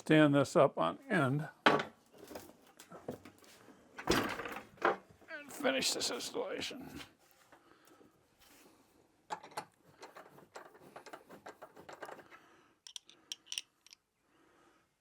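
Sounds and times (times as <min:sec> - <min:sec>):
metal tools clicking and knocking: 0:09.3 - 0:14.0.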